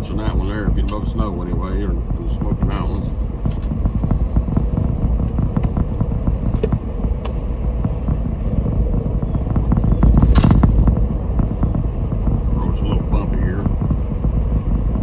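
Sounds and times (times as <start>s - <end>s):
car tyres and engine rumble: 0.0s - 15.0s
sharp knock: 10.0s - 11.2s.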